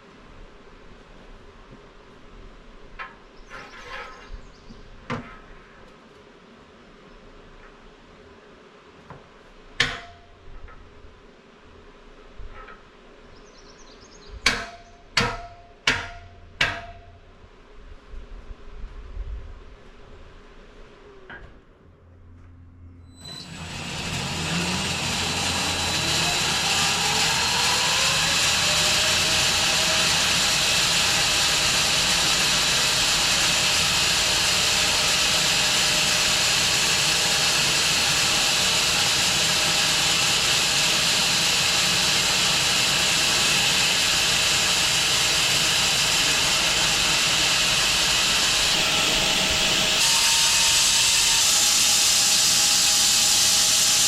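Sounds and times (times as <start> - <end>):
bandsaw mill motor running: 23.1 - 54.0.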